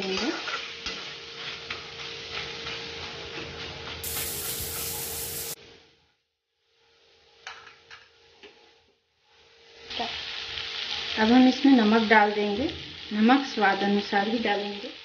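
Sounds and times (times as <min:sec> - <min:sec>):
vegetables sizzling in a pan: 0:00.0 - 0:05.6, 0:06.7 - 0:15.0
metal spatula stirring: 0:01.5 - 0:05.6.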